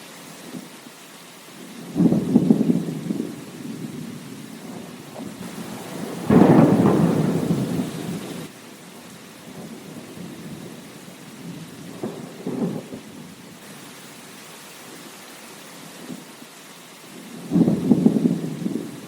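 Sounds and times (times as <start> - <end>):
steady rain: 0.0 - 19.0
thunder rumbling: 1.8 - 8.5, 9.4 - 13.6, 17.3 - 19.0.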